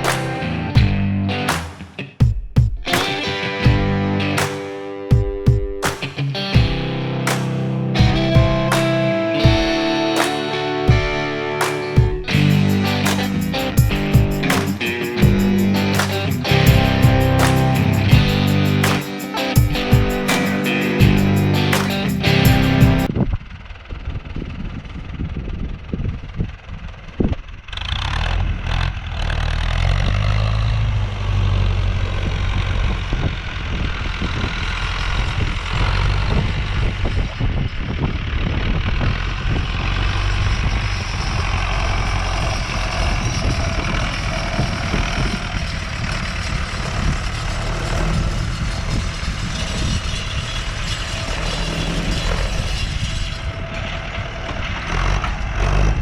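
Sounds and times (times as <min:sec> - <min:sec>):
rattle: 0:12.3 - 0:23.1, 0:32.1 - 0:56.0
tractor diesel engine running: 0:38.1 - 0:56.0.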